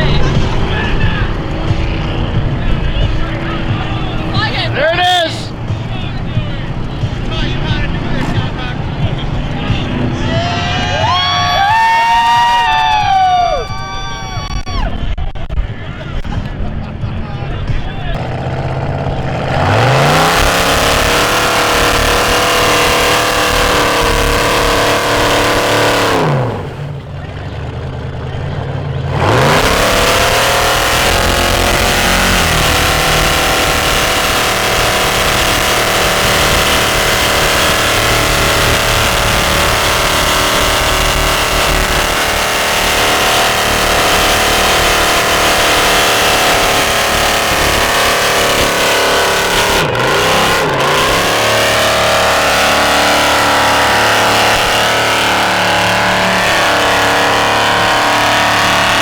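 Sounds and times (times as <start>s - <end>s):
off-road vehicle engine revving: 0.0s - 14.5s, 15.9s - 59.0s.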